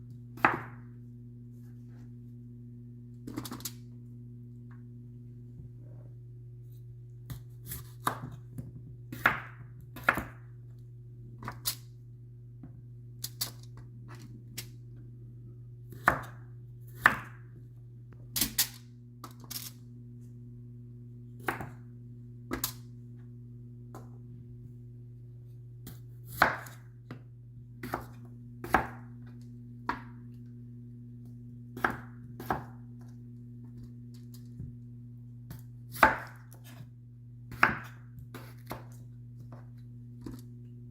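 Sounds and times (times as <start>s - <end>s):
steady low hum: 0.0s - 40.9s
knife chopping on a board: 0.4s - 0.9s, 7.3s - 10.5s, 15.9s - 17.4s, 21.4s - 21.8s, 25.8s - 27.2s, 27.8s - 29.1s, 31.8s - 33.0s, 35.5s - 36.9s, 37.5s - 40.4s.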